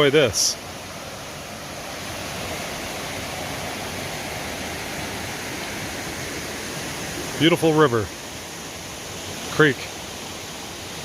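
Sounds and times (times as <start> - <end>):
creek rushing over rapids: 0.0 - 11.0.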